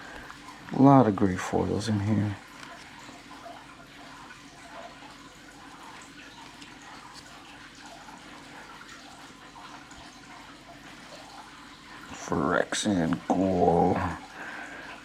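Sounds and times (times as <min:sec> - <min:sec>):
low room hum: 0:00.0 - 0:15.0
trading cards rustling and ticking: 0:02.0 - 0:03.2, 0:05.9 - 0:08.6.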